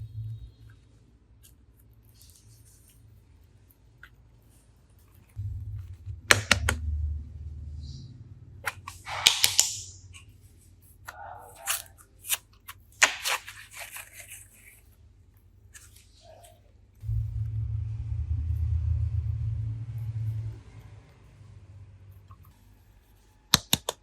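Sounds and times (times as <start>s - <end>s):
low hum: 0.0s - 0.8s, 5.4s - 9.1s, 17.0s - 23.2s
sharp clicks and snaps: 8.6s - 10.0s
crinkling: 10.1s - 16.7s.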